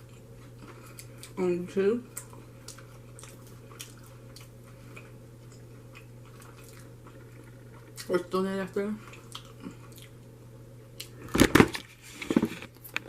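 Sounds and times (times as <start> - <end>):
close-up chewing: 0.0 - 1.4, 2.1 - 8.3, 9.0 - 10.3
steady low hum: 0.0 - 13.0.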